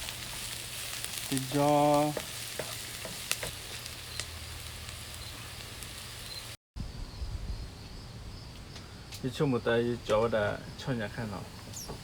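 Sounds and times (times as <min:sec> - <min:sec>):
food sizzling in a frying pan: 0:00.0 - 0:06.6.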